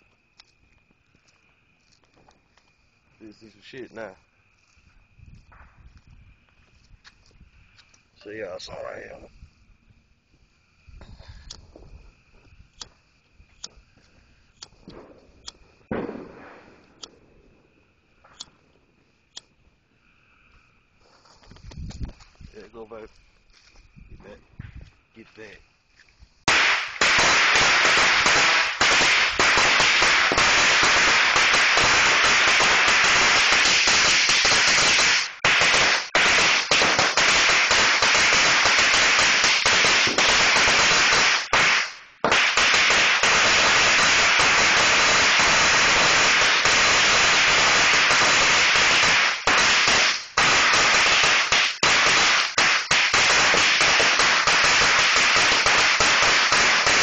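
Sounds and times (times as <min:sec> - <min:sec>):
firecrackers crackling: 0:10.7 - 0:18.6, 0:26.4 - 0:57.0.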